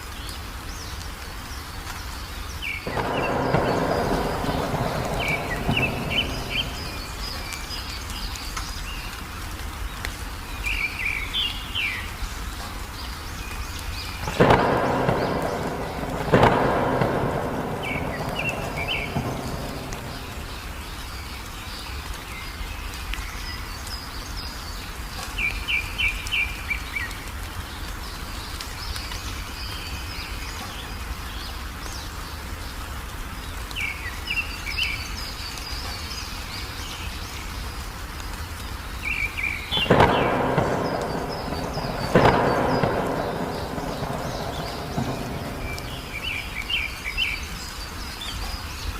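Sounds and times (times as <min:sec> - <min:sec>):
steady rain: 0:00.0 - 0:48.9
rapid bird chirps: 0:02.2 - 0:09.3, 0:10.5 - 0:27.2, 0:38.9 - 0:48.9
thunder cracks: 0:02.8 - 0:08.3, 0:14.2 - 0:21.3, 0:39.7 - 0:47.2.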